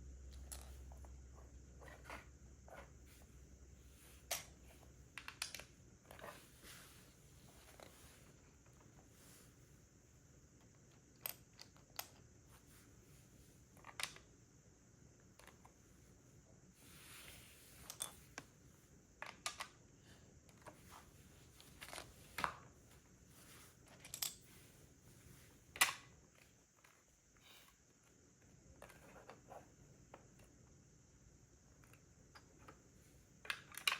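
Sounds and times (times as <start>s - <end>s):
soft rustle: 6.0s - 10.1s, 15.7s - 19.0s, 20.6s - 28.2s.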